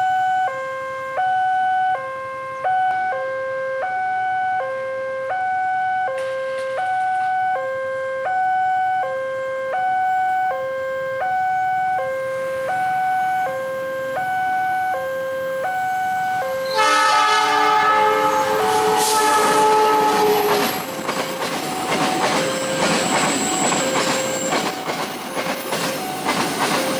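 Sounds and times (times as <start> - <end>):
level crossing two-tone alarm: 0.0 - 26.9
train horn: 15.6 - 22.6.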